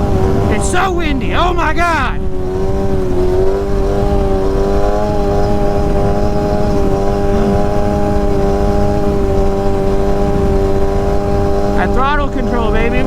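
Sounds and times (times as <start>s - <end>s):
motorcycle engine at steady revs: 0.0s - 13.0s
wind rumble: 0.0s - 13.0s.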